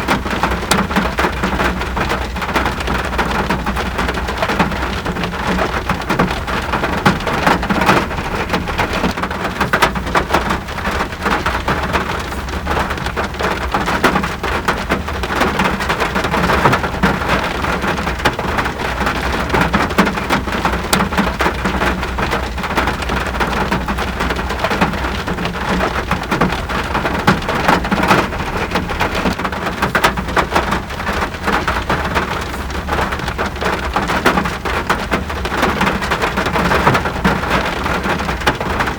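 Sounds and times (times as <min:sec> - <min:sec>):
rain hissing: 0:02.8 - 0:17.7, 0:23.4 - 0:35.3.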